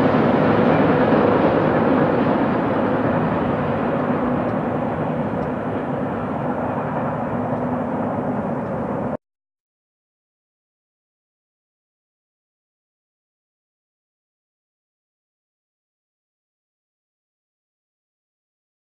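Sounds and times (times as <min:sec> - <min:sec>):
train wheels rumbling on rails: 0:00.0 - 0:09.2.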